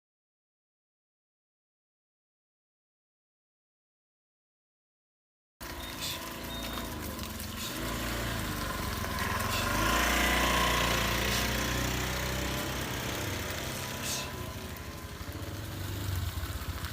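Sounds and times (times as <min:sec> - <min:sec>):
small engine running: 0:05.6 - 0:16.9.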